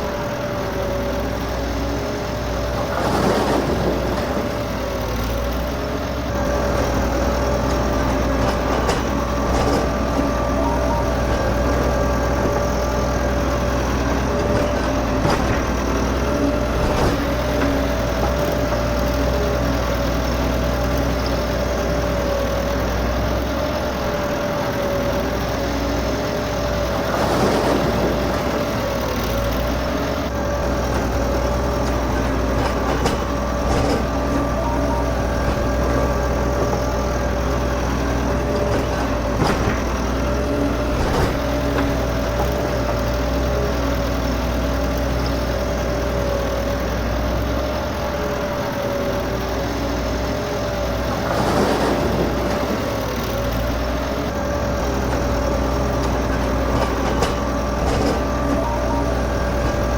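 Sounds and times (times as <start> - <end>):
scraping rustle: 51.0 - 54.1.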